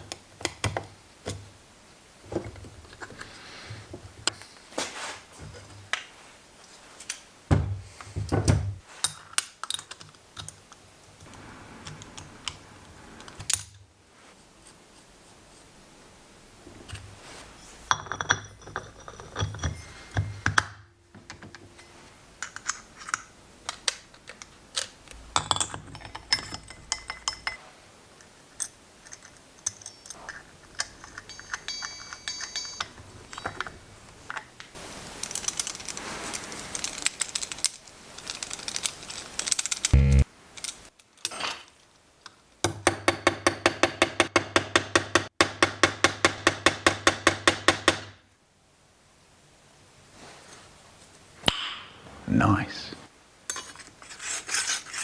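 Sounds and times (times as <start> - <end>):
metal parts and tools clinking: 17.6 - 20.6, 21.2 - 27.6, 28.5 - 40.0, 53.5 - 55.0.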